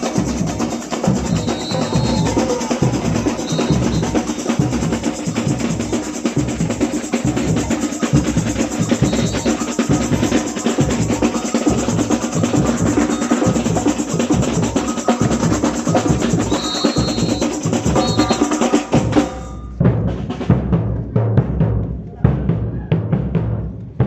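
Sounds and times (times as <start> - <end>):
booming bass drums: 0.0 - 24.0
samba drumming: 0.0 - 24.0
high whistle blasts: 1.2 - 5.4, 8.8 - 10.4, 12.9 - 13.7, 16.4 - 18.7.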